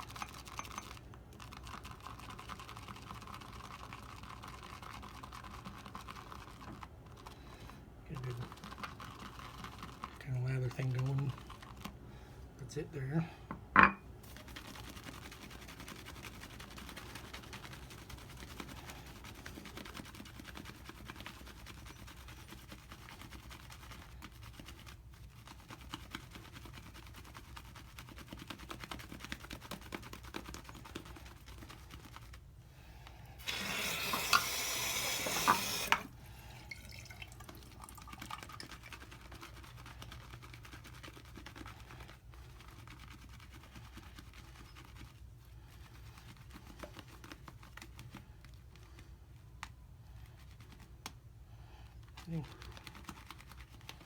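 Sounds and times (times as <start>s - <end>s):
shaving brush swishing lather: 0.0s - 12.0s, 14.2s - 32.5s, 38.0s - 51.2s, 52.0s - 54.0s
water tap running: 33.4s - 38.1s.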